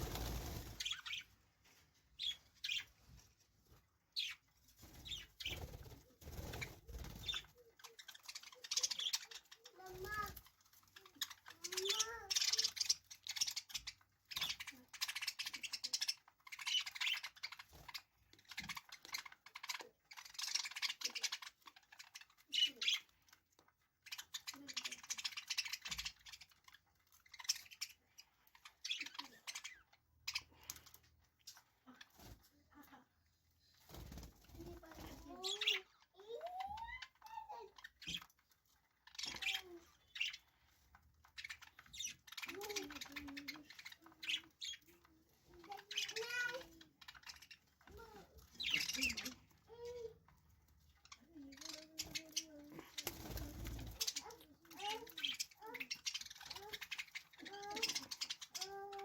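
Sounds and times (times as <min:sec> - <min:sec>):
budgerigars chirping: 0:00.0 - 0:01.3, 0:41.3 - 0:45.0, 0:48.5 - 0:49.4.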